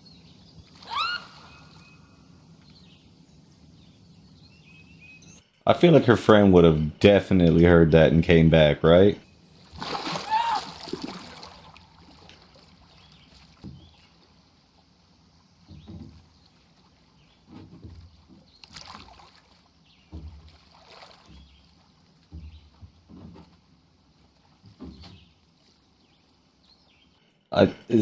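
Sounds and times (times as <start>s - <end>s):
water splashing and sloshing: 0.0s - 8.1s, 9.2s - 28.0s.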